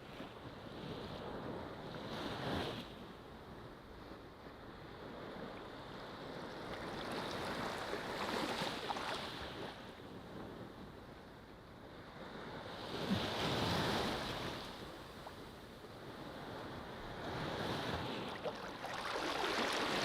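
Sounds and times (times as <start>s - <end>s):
ocean waves breaking: 16.4s - 20.0s.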